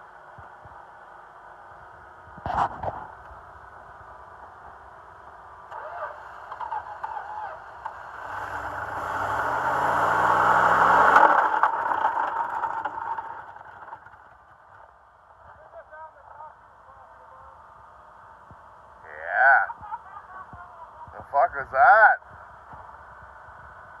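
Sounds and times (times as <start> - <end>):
truck engine revving: 5.7 - 14.7.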